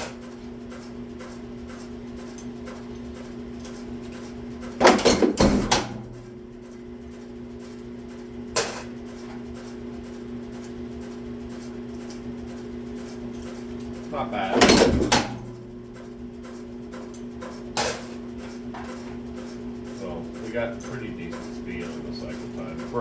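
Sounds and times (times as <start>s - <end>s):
punch press motor humming: 0.0s - 23.0s
press clanking: 14.2s - 23.0s.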